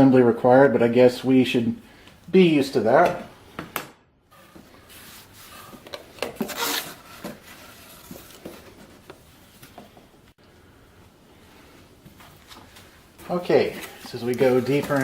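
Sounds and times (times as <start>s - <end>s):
cardboard rustling and scraping: 4.4s - 10.0s, 12.1s - 15.0s.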